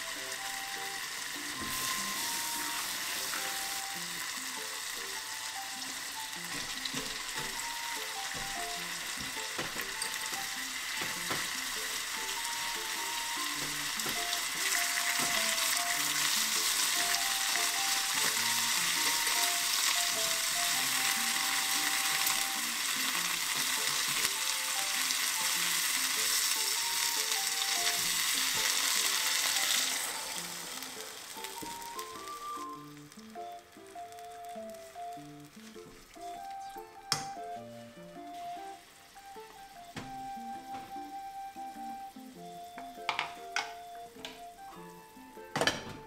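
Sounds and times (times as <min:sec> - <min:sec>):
meat and vegetables sizzling in oil: 0:00.0 - 0:46.0
water pouring into pan: 0:00.2 - 0:36.5.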